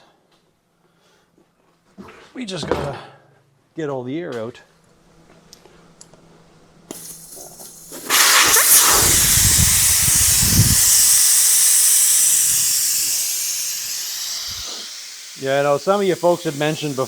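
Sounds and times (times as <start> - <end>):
air hissing out of a tire: 6.9 - 17.0.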